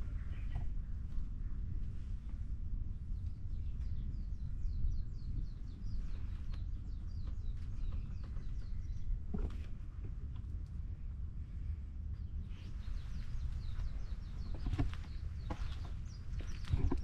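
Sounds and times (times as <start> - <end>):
steady low rumble: 0.0 - 17.0
small bird chirping: 3.1 - 9.5, 12.2 - 17.0.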